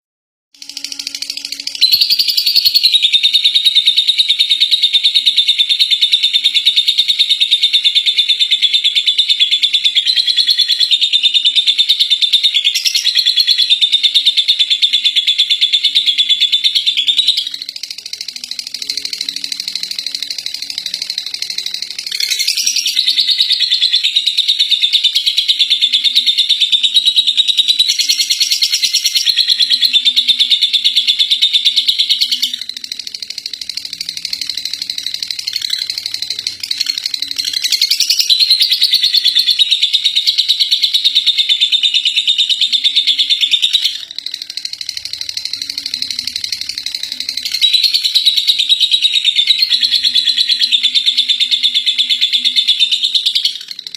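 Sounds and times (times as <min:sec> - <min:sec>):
lovebird chattering trill: 0:00.6 - 0:53.9.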